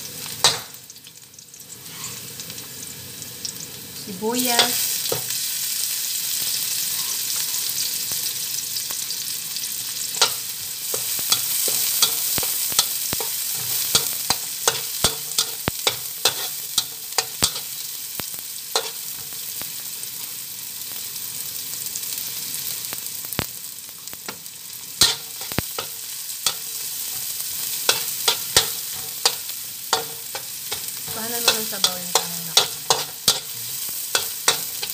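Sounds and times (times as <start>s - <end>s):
onion and garlic sizzling in oil: 0.0s - 34.9s
spatula scraping a wok: 1.8s - 2.3s, 6.8s - 7.8s, 10.1s - 17.8s, 18.7s - 19.3s, 25.0s - 34.9s.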